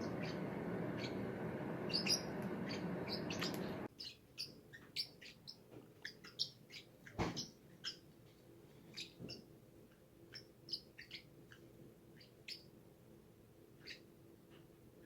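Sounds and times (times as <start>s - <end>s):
steady background noise: 0.0s - 3.9s
parrots chirping: 0.0s - 8.1s, 8.9s - 9.4s, 10.3s - 12.7s, 13.8s - 14.1s.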